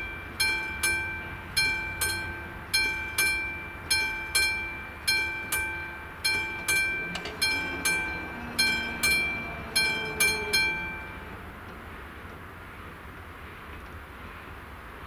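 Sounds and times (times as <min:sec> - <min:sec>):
level crossing bell ringing: 0:00.0 - 0:11.5.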